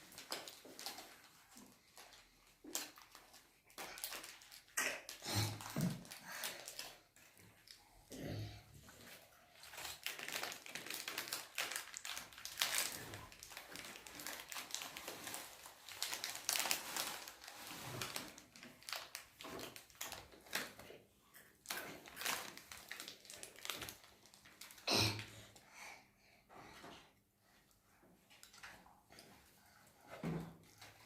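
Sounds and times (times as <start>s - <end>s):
sweet wrappers crinkling: 0.0s - 8.0s, 9.0s - 24.9s.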